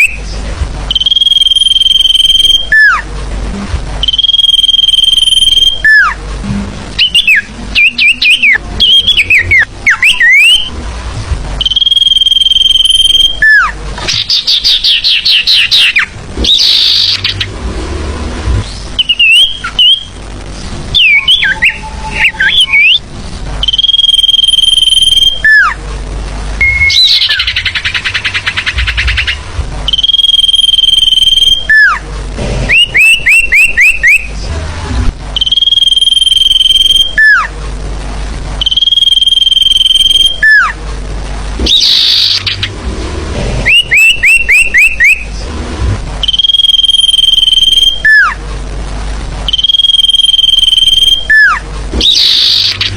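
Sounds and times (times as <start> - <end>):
songbird whistles and trills: 0.9 - 3.0, 4.0 - 6.2, 7.0 - 10.7, 11.6 - 17.5, 19.0 - 20.1, 20.9 - 25.8, 26.6 - 32.0, 32.7 - 34.3, 35.4 - 37.5, 41.6 - 42.7, 43.7 - 45.3, 46.2 - 48.4, 49.5 - 52.9.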